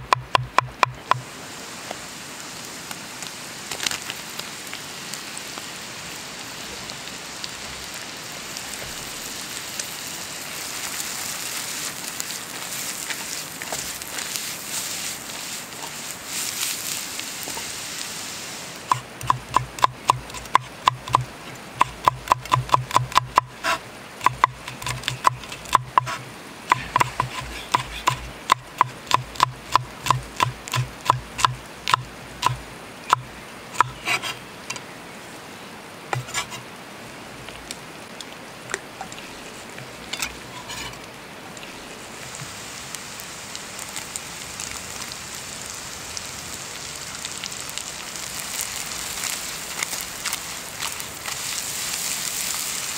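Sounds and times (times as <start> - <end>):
knife chopping on wooden board: 0.1 - 1.2, 21.8 - 33.2.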